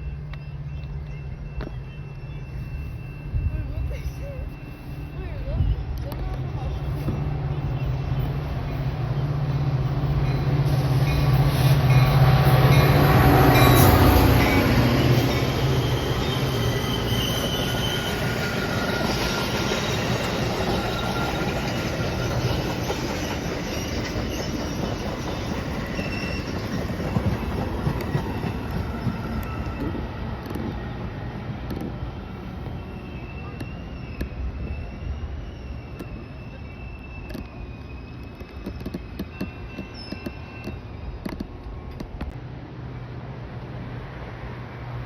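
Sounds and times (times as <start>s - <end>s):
train wheel rumble and clatter: 0.0s - 42.6s
train engine hum: 0.0s - 45.0s
high wheel squeals: 10.0s - 30.2s, 32.4s - 42.0s.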